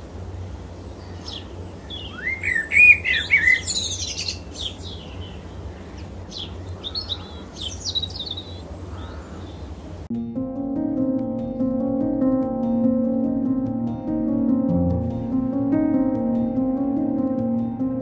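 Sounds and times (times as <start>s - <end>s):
steady low hum: 0.0s - 18.0s
birds chirping and singing: 0.8s - 10.0s.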